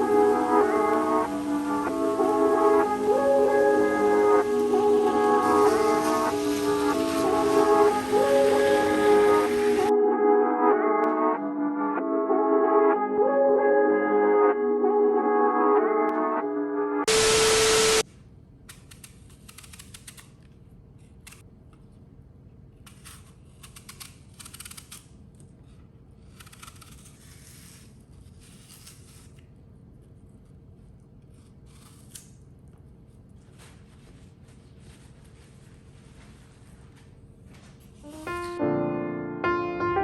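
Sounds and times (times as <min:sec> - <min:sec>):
soft rustling or scraping: 0:32.9 - 0:38.6.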